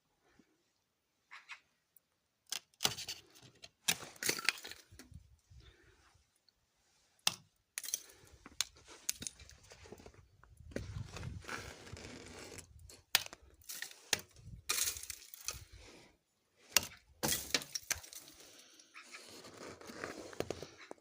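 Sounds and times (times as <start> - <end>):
crackle of breaking ice: 3.9 - 5.0, 7.3 - 9.6, 11.7 - 15.7, 16.8 - 18.8.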